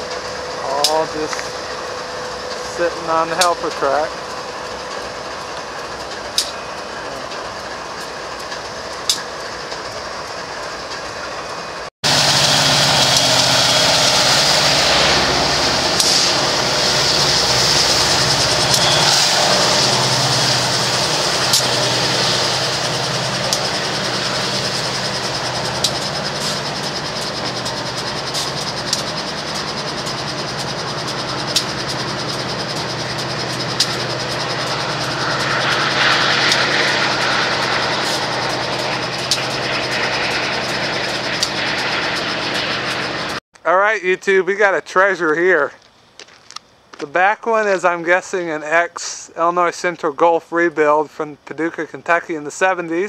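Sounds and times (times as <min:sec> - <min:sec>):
freight train rolling past: 0:00.0 - 0:43.4
wheels rushing on rail: 0:00.0 - 0:43.4
diesel locomotive rumble: 0:00.0 - 0:53.0
sharp ticks: 0:18.4 - 0:19.0, 0:20.9 - 0:43.1.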